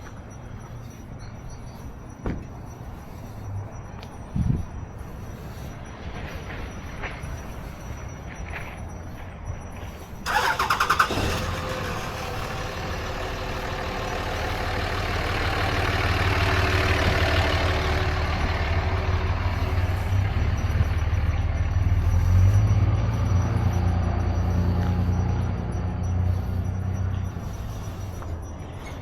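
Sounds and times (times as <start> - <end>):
engine running low hum: 0.0 - 29.0
engine cranking clicks: 10.2 - 20.9.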